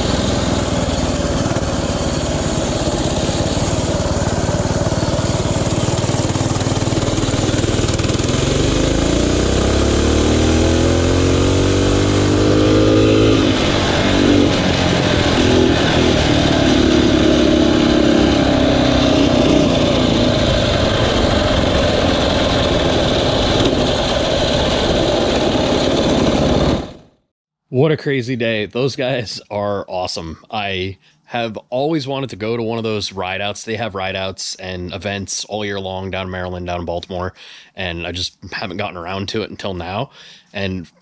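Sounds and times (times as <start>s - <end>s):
mini bike engines running: 0.0s - 26.9s.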